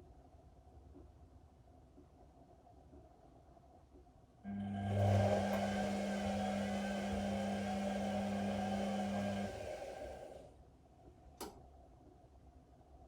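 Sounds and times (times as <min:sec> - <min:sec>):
washing machine drain pump humming: 0:04.5 - 0:10.5.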